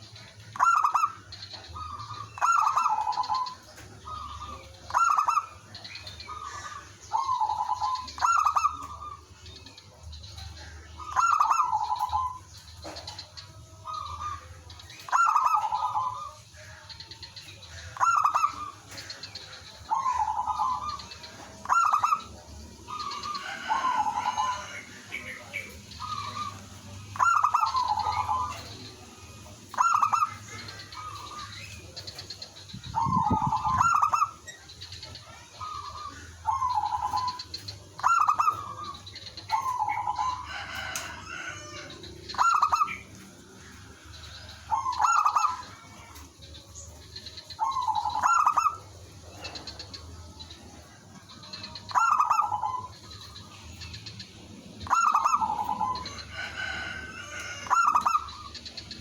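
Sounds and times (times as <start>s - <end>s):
doves cooing: 0.0s - 59.0s.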